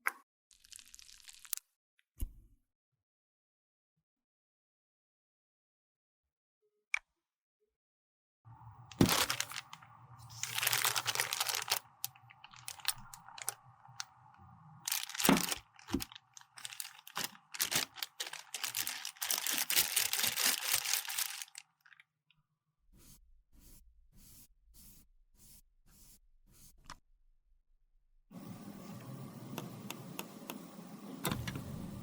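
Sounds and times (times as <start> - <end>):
makeup crackling and crunching: 8.6 - 22.0.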